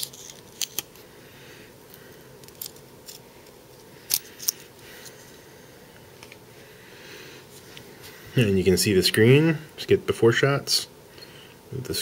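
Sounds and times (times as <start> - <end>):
paper wrapper crinkling: 0.0 - 1.0.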